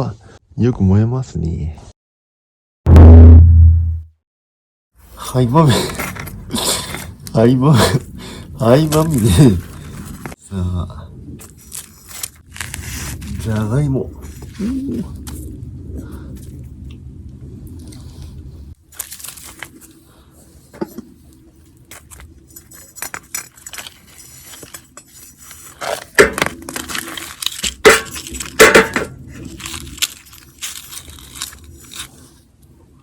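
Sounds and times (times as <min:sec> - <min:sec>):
steady low hum: 0:05.9 - 0:18.8
clicks scrapes and crunches: 0:11.4 - 0:13.6, 0:21.4 - 0:32.5.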